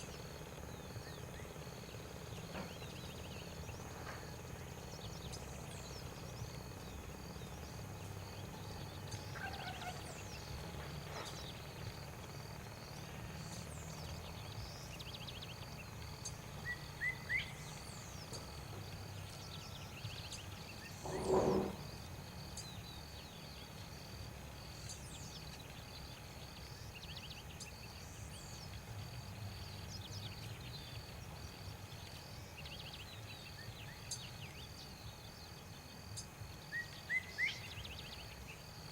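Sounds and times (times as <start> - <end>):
low animal call: 9.3 - 10.3, 21.0 - 21.9.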